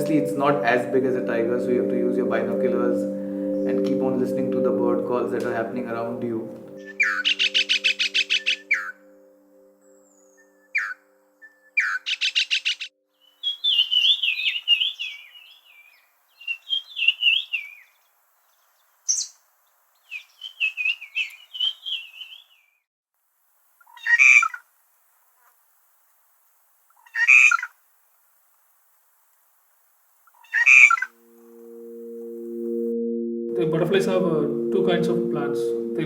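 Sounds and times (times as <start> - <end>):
birds calling and warbling: 6.7 - 9.0, 9.9 - 11.0, 11.6 - 19.4, 20.0 - 22.8, 30.3 - 31.2
harsh bird squawks: 6.8 - 9.0, 11.8 - 15.2, 20.1 - 22.4, 23.8 - 24.6, 27.0 - 27.8, 30.3 - 31.2.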